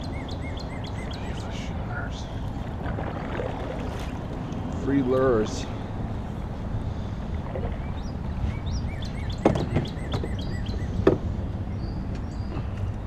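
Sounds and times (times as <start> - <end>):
small birds chirping: 0.0 - 2.5, 4.6 - 13.0
sharp knocks: 9.4 - 10.4.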